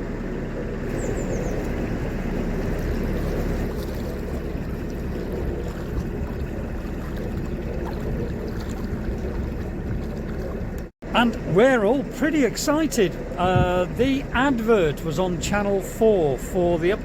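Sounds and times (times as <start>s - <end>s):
boat engine rumbling: 0.0s - 17.0s
water noise: 0.0s - 17.0s
wind noise: 3.2s - 10.9s, 13.4s - 14.4s.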